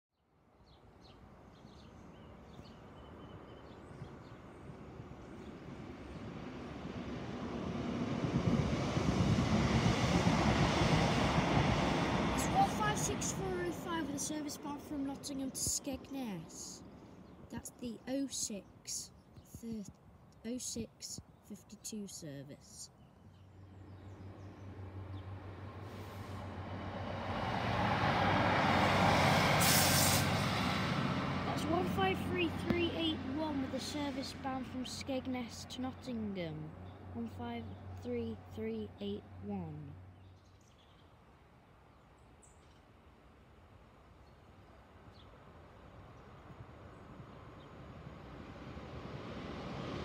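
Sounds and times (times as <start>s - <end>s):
diesel train rumbling: 4.5s - 17.7s, 23.7s - 40.1s.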